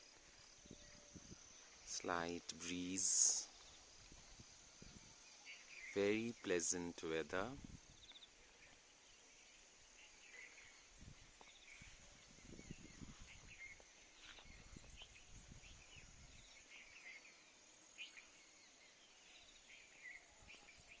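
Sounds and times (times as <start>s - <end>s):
high insect drone: 0.0s - 8.3s
wind rumble on microphone: 0.5s - 1.8s, 4.0s - 5.2s, 7.3s - 8.2s, 11.0s - 16.6s.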